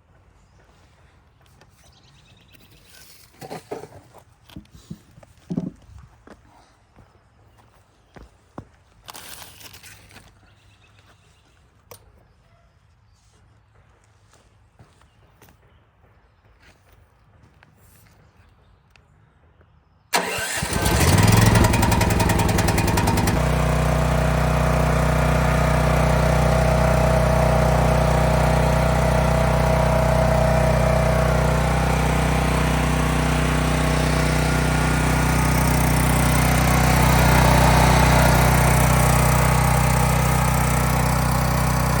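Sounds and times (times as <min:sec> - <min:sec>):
generator engine starting and running: 0:20.1 - 0:42.0.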